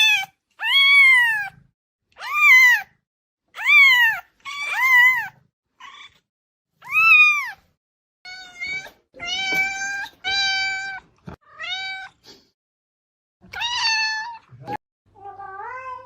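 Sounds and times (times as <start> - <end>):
cat meowing: 0.0 - 1.6, 2.2 - 3.0, 3.6 - 7.7, 8.3 - 12.2, 13.5 - 16.0.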